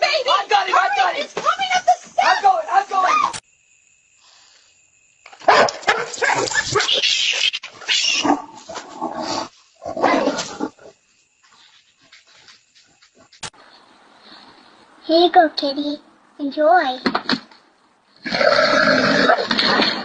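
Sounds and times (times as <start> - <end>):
animal crying loudly: 6.4 - 8.6.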